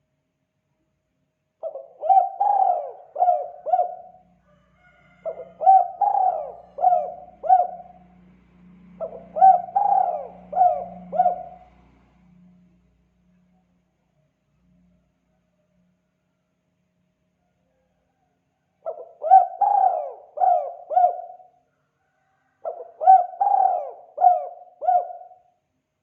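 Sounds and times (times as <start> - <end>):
dove cooing: 1.6 - 4.3, 5.2 - 8.1, 9.0 - 11.9, 18.8 - 21.6, 22.6 - 25.5.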